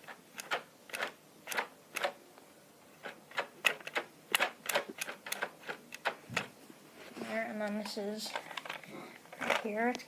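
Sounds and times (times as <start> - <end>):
sharp plastic clicks: 0.0 - 2.2, 3.0 - 6.5.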